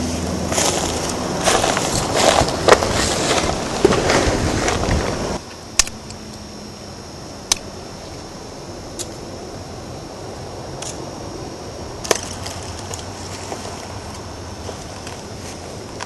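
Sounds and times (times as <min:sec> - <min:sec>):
footsteps on dry leaves: 0:00.0 - 0:05.4, 0:12.1 - 0:16.0
faint high whine: 0:00.0 - 0:16.0
sharp snaps: 0:05.8 - 0:06.2, 0:07.5 - 0:07.7.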